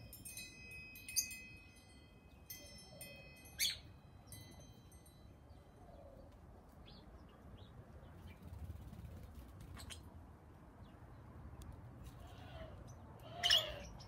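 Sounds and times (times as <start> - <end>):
birds chirping faintly: 0.0 - 10.2.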